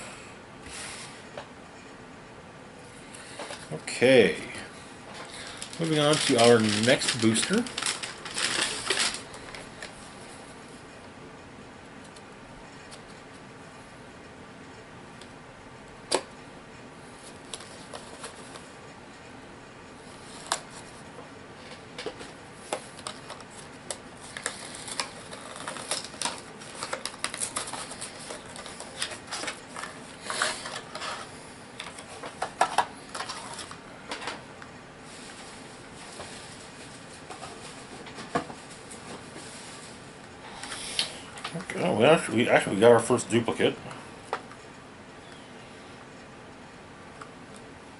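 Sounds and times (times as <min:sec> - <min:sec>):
plastic packaging rustling: 0:05.1 - 0:10.2, 0:17.2 - 0:18.7, 0:21.6 - 0:34.4.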